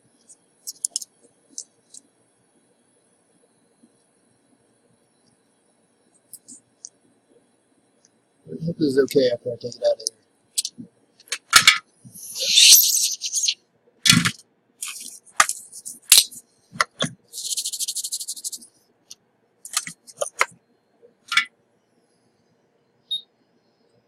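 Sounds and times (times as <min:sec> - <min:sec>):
metal tools clicking and tapping: 0:00.7 - 0:01.7, 0:10.6 - 0:11.8, 0:19.7 - 0:20.5.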